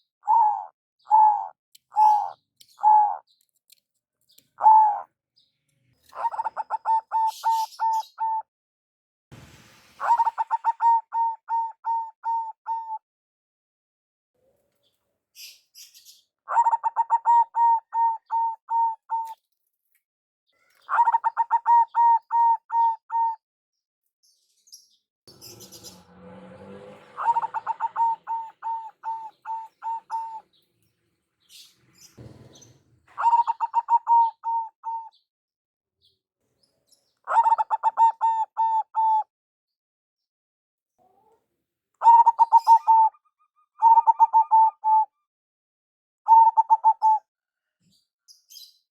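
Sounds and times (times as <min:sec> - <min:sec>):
dove cooing: 0:00.2 - 0:03.2, 0:04.6 - 0:05.0, 0:06.1 - 0:08.4, 0:10.0 - 0:13.0, 0:16.5 - 0:19.4, 0:20.9 - 0:23.4, 0:26.7 - 0:30.6, 0:32.2 - 0:35.2, 0:37.3 - 0:39.2, 0:42.0 - 0:45.1, 0:46.3 - 0:47.2.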